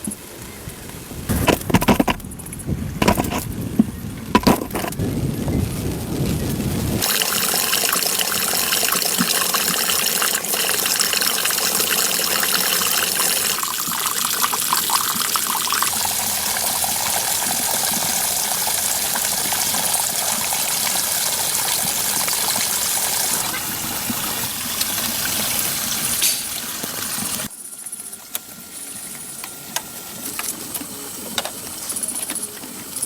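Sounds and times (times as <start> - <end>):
running water splashing: 6.2 - 27.5.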